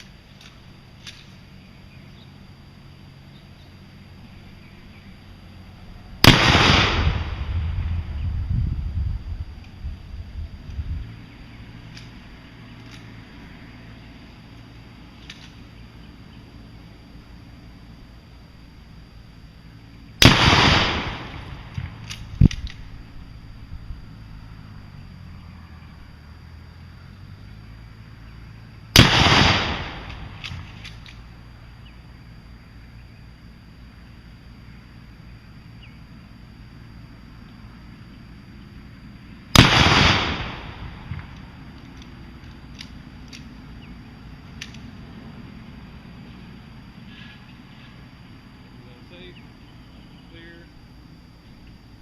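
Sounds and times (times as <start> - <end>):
low rolling rumble: 4.0 - 52.0
gunshot with echo: 6.2 - 7.6, 20.2 - 22.0, 29.0 - 30.6, 39.6 - 41.2.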